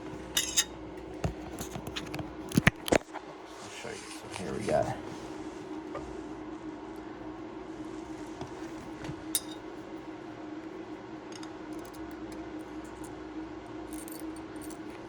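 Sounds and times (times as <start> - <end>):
low steady hum: 0.0 - 15.0
metal parts clinking: 0.4 - 0.7, 9.4 - 9.6, 13.9 - 14.9.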